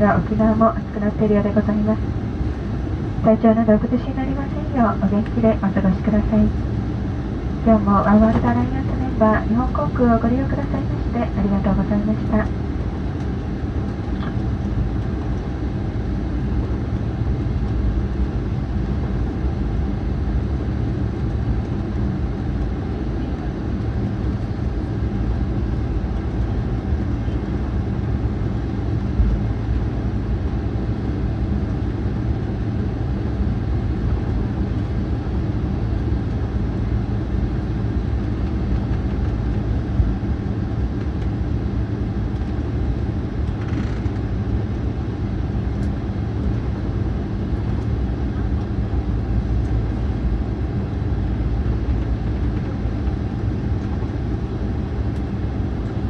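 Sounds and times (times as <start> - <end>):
jet engines idling rumble: 0.0 - 56.0.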